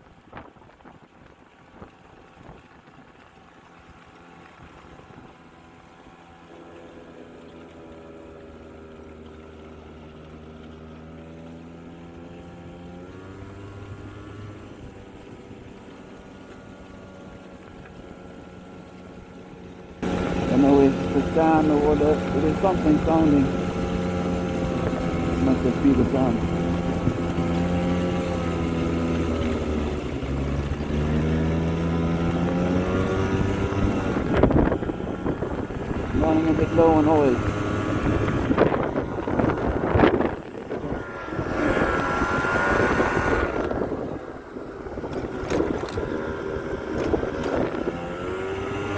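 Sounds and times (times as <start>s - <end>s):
scooter engine revving: 7.9s - 17.3s, 20.0s - 48.9s.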